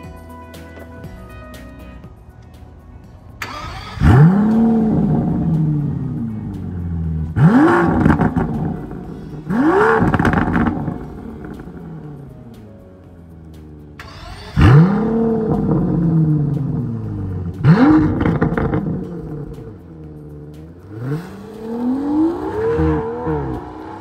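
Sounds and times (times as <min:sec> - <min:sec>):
soft background music: 0:00.0 - 0:24.0
car engine starting and revving: 0:02.8 - 0:24.0.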